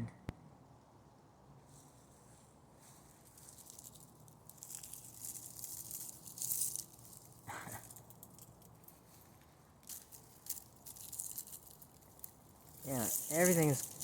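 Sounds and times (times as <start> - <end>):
ice crackling and pattering: 3.2 - 14.0.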